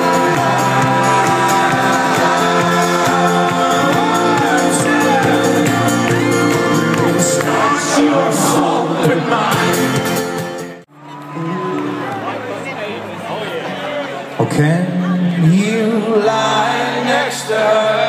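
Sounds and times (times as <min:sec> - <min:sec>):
crowd cheering and whooping: 0:00.0 - 0:12.6
live folk-rock band: 0:00.0 - 0:12.7.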